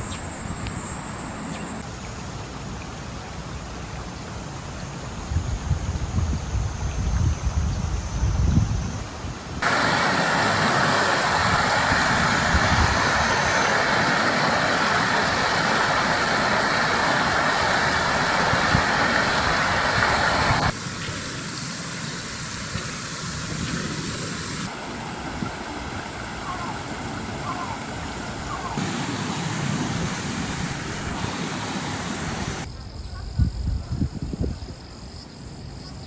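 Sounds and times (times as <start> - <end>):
wind rumble on microphone: 5.1 - 9.7, 10.9 - 14.2, 15.0 - 20.7, 29.6 - 35.7
rushing river water: 9.6 - 32.7
soft water sound: 9.6 - 32.7.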